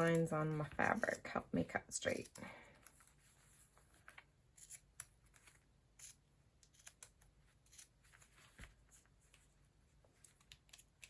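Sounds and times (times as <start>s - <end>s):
scissors snipping paper: 4.6s - 8.0s, 10.2s - 11.0s.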